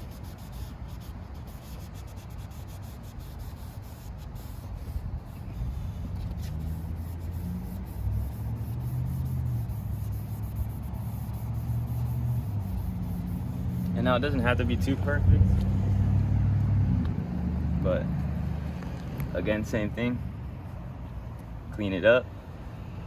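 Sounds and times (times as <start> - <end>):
sandpaper rubbing on plastic: 0.0 - 14.9.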